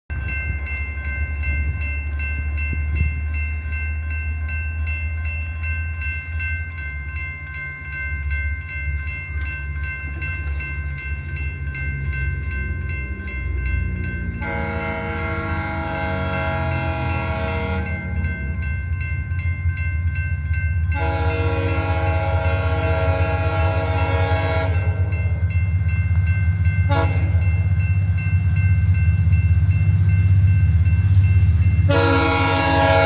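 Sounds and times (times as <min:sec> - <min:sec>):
diesel locomotive rumble: 0:00.1 - 0:33.0
railroad crossing bell ringing: 0:00.1 - 0:33.0
locomotive air horn blowing: 0:14.4 - 0:17.9, 0:21.0 - 0:24.8, 0:26.9 - 0:27.3, 0:31.9 - 0:33.0.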